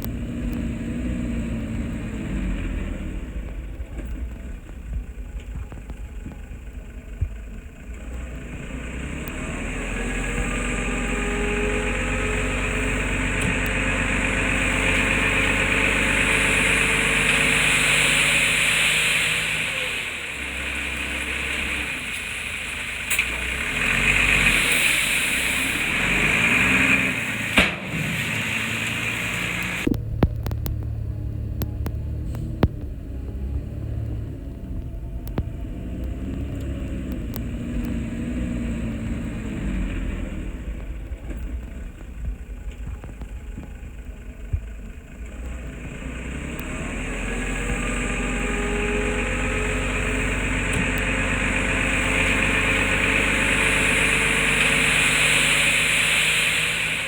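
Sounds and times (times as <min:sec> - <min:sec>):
heavy diesel engine revving: 0:00.0 - 0:43.2, 0:43.9 - 0:57.0
hiss: 0:10.1 - 0:29.9, 0:48.5 - 0:57.0.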